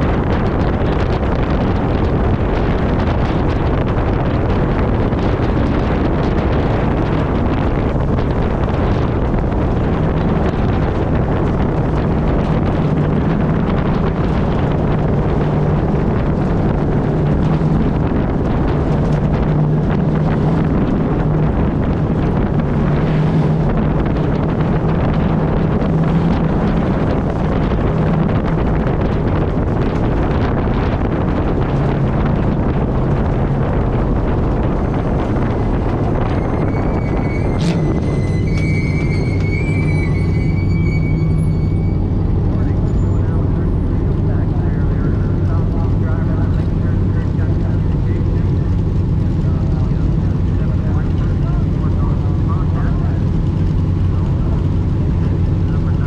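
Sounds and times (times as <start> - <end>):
truck engine droning: 0.0 - 56.0
wind noise on microphone: 0.0 - 56.0.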